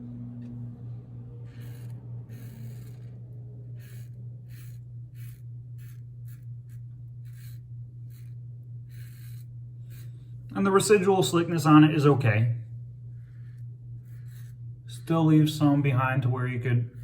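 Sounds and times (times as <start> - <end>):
steady low hum: 0.0 - 17.0
razor scraping stubble: 1.4 - 11.2.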